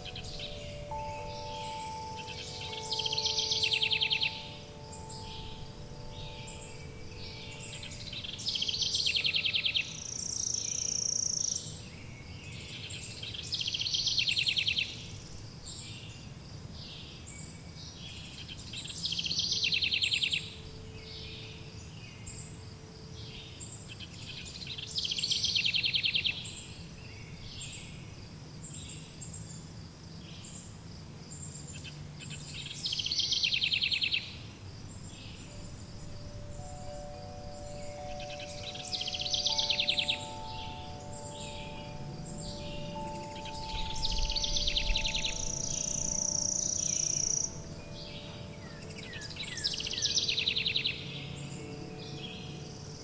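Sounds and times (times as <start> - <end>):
songbird trilling: 0.0 - 15.2, 31.7 - 53.0.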